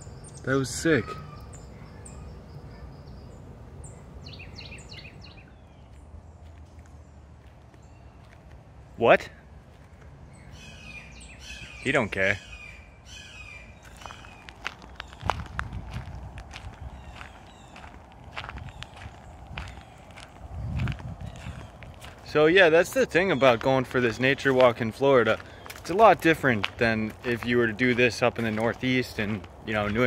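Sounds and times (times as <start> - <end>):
birds chirping: 0.0 - 30.0
low background hum: 0.0 - 30.0
footsteps on trail: 4.2 - 11.4, 13.7 - 30.0.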